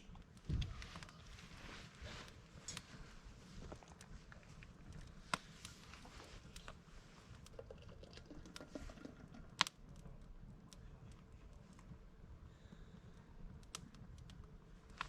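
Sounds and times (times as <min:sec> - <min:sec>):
campfire crackling: 0:00.0 - 0:15.0
fire snapping: 0:00.0 - 0:15.0.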